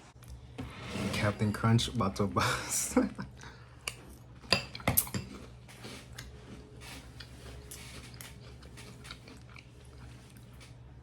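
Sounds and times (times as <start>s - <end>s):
cereal scraping and rustling: 5.7s - 10.7s.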